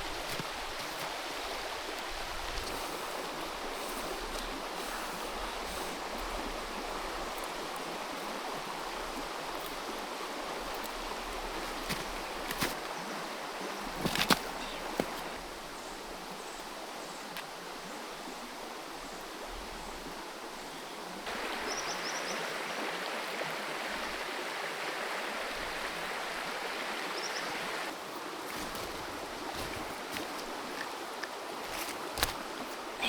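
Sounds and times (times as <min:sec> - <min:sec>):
creek water flowing: 0:00.0 - 0:33.0.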